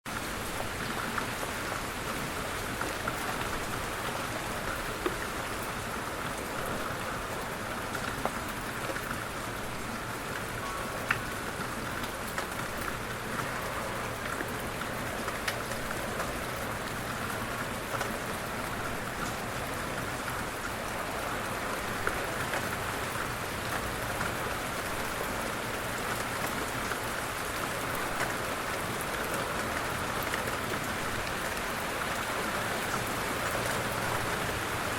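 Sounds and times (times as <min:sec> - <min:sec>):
light rain patter: 0:00.1 - 0:34.9.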